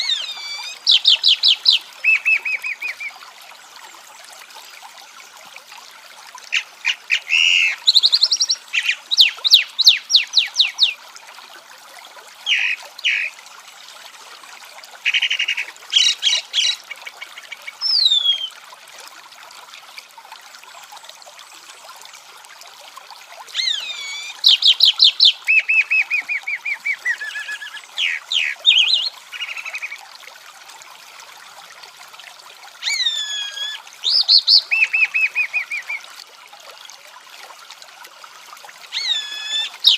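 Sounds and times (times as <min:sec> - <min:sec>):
songbird singing: 0:00.0 - 0:03.2, 0:06.6 - 0:11.0, 0:12.5 - 0:13.4, 0:15.1 - 0:18.5, 0:23.6 - 0:30.0, 0:32.8 - 0:36.0, 0:38.9 - 0:39.9.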